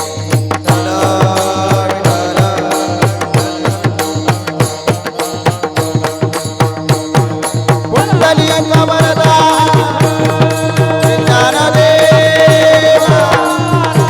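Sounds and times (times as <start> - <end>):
barrel drum beating: 0.0 - 14.0
hand cymbals clashing: 0.0 - 14.0.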